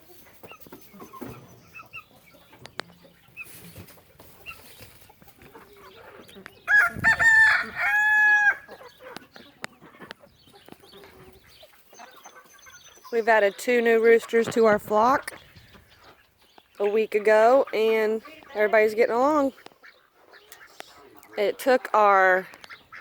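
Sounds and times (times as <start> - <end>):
hens clucking: 0.0 - 23.0
rooster crowing: 6.7 - 8.7.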